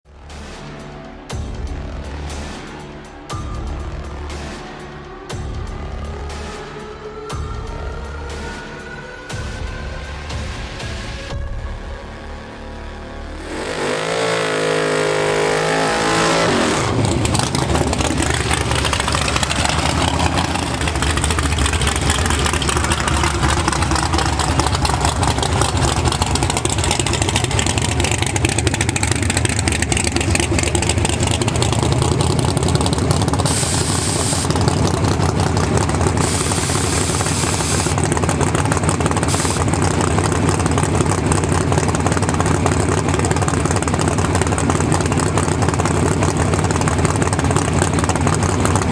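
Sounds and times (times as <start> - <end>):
pickup engine rumbling: 13.1 - 48.9.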